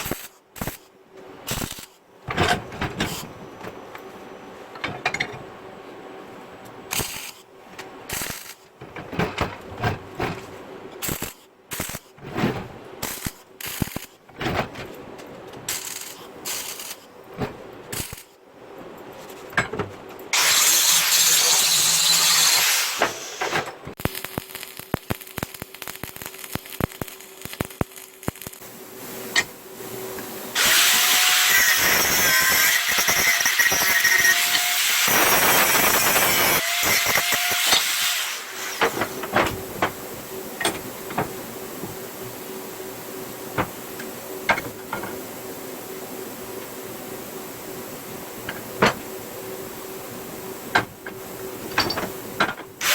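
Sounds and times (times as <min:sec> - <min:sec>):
metal parts knocking and clanking: 0:04.7 - 0:05.5, 0:08.8 - 0:11.1, 0:50.7 - 0:52.8
power tool running: 0:20.4 - 0:23.5, 0:30.5 - 0:38.9.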